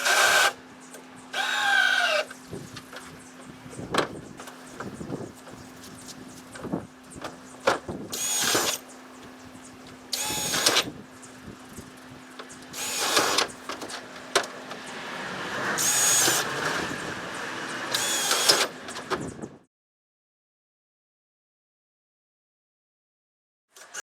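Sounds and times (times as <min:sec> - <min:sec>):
power drill whining: 0:00.0 - 0:00.6, 0:01.3 - 0:02.3, 0:08.1 - 0:08.8, 0:10.1 - 0:10.9, 0:12.8 - 0:13.5, 0:15.4 - 0:17.1, 0:17.9 - 0:18.7.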